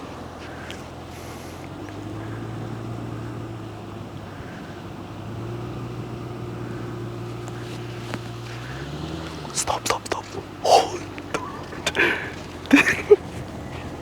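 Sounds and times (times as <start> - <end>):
car engine running at low revs: 0.0 - 14.0.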